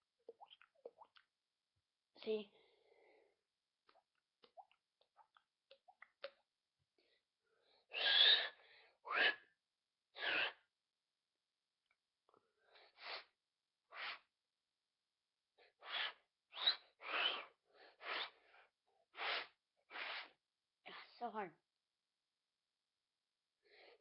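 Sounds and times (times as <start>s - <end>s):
breathy mouth puffs: 15.8s - 18.6s, 19.2s - 20.4s.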